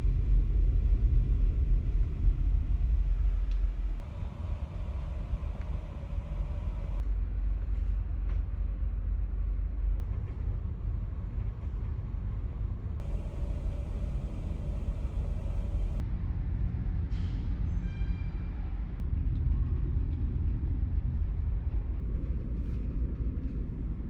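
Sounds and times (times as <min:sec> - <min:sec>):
faint hum: 0:00.0 - 0:08.0, 0:12.7 - 0:16.0
ferry engine low rumble: 0:00.0 - 0:24.0.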